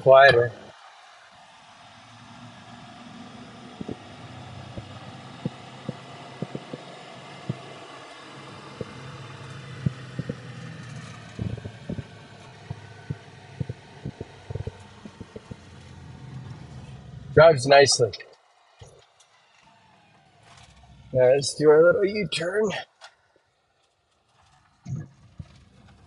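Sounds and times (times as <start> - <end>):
road noise: 0.0 - 26.0
truck engine hum: 0.0 - 26.0
sharp clicks and knocks: 3.8 - 4.1, 4.7 - 16.9, 23.8 - 26.0.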